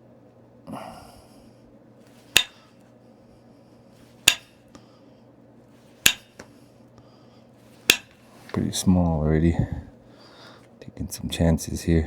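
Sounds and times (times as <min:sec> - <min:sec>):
tool striking stone clicks: 0:02.3 - 0:02.6, 0:04.2 - 0:04.5, 0:06.0 - 0:06.5, 0:07.9 - 0:08.2.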